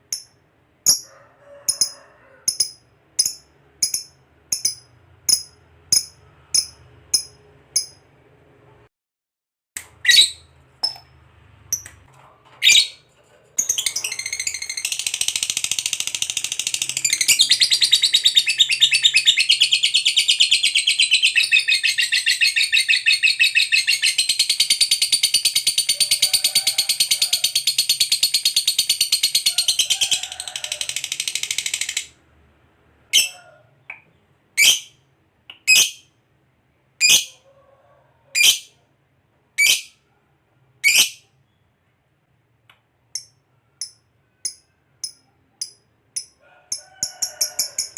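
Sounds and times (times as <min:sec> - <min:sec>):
lovebird chirping and trilling: 0:01.8 - 0:08.0, 0:10.0 - 0:11.0, 0:12.6 - 0:26.4, 0:33.1 - 0:33.4, 0:34.6 - 0:35.0, 0:35.6 - 0:36.1, 0:37.0 - 0:37.4, 0:38.4 - 0:38.8, 0:39.6 - 0:40.0, 0:40.8 - 0:41.3.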